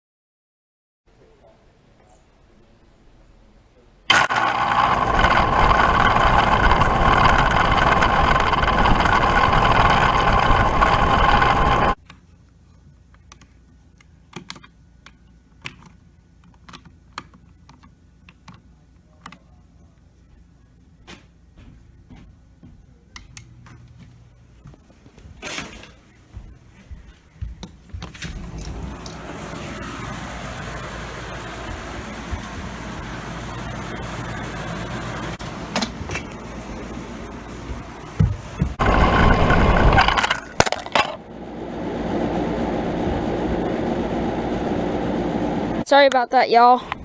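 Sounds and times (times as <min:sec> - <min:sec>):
air conditioner unit running: 0:04.1 - 0:46.8
faint low hum: 0:11.8 - 0:39.9.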